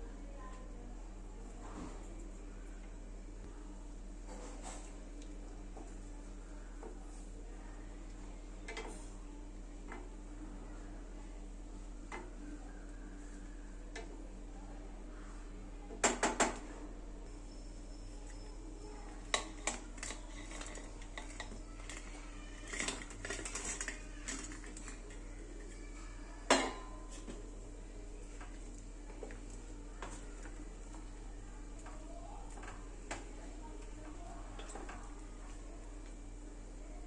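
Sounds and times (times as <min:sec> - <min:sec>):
utensils clinking against pots: 0:19.1 - 0:22.0, 0:22.6 - 0:25.7.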